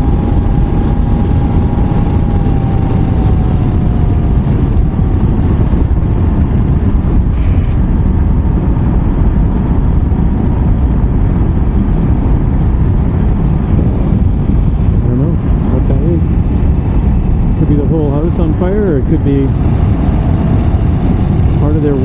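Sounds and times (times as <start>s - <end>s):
faint whine: 0.0s - 22.0s
motorcycle engine: 0.0s - 22.0s
wind and road noise: 0.0s - 22.0s.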